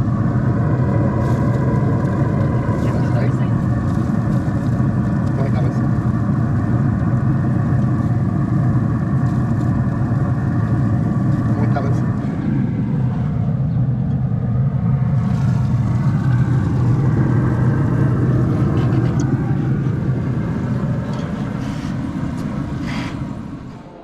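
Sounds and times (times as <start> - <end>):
motor humming: 14.8 - 24.0.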